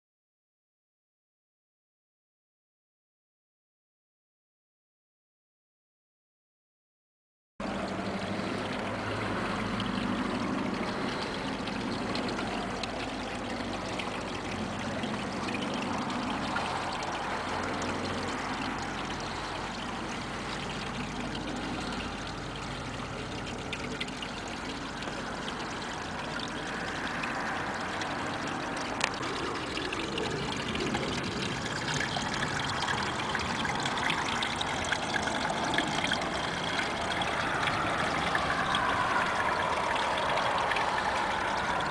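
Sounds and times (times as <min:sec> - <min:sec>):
waterfall rushing water: 0:24.8 - 0:41.9.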